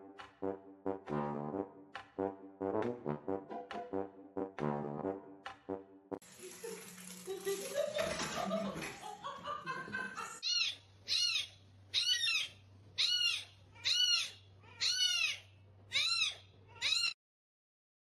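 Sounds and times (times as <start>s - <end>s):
small animal high-pitched call: 10.4s - 17.2s.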